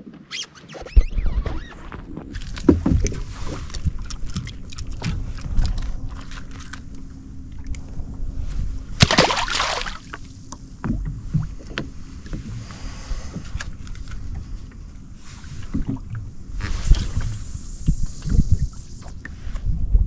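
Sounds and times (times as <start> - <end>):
wind rumbling on microphone: 0.0 - 9.2, 9.9 - 20.0
knocks and clicks of tackle: 0.9 - 5.8
fish splashing into water: 9.0 - 10.2.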